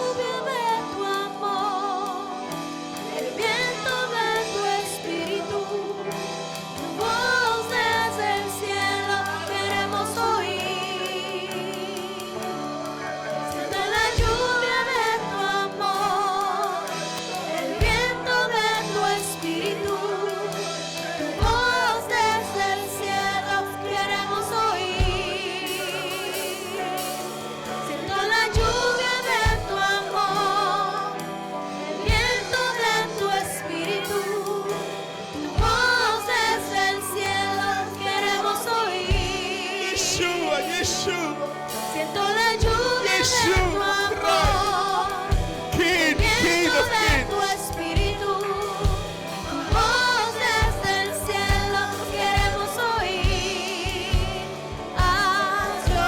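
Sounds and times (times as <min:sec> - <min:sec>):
drum hits: 0:42.6 - 0:48.2.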